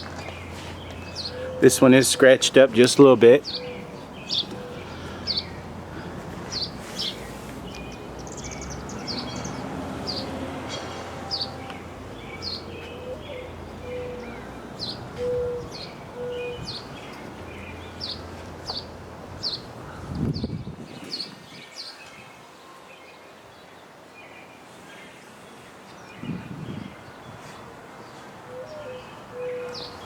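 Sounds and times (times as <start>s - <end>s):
outdoor background hum: 0.0s - 20.8s
birds chirping: 0.0s - 30.0s.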